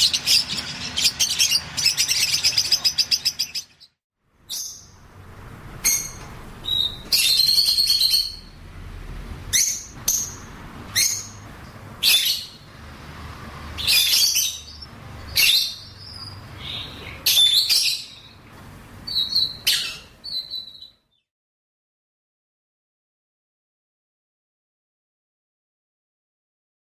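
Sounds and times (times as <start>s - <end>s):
birds chirping and squawking: 0.0s - 4.9s, 5.8s - 8.6s, 9.5s - 12.7s, 13.8s - 18.4s, 19.0s - 21.0s.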